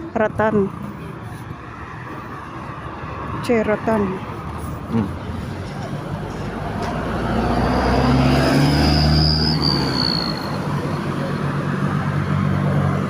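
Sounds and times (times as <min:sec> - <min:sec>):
vehicle engine droning past: 0:04.9 - 0:13.0.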